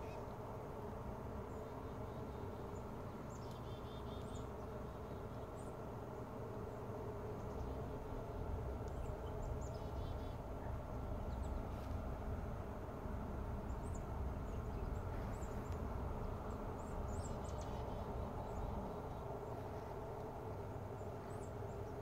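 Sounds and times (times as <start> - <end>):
faint high bird chirps: 0.0 - 0.4
steady low rumble: 0.0 - 22.0.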